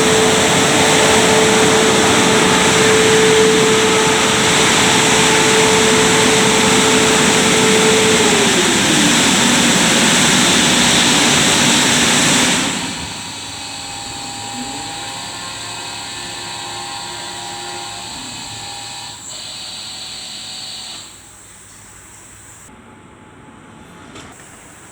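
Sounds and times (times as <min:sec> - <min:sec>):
loud rush of air: 0:00.0 - 0:13.9
machine hum with whine: 0:00.0 - 0:22.7.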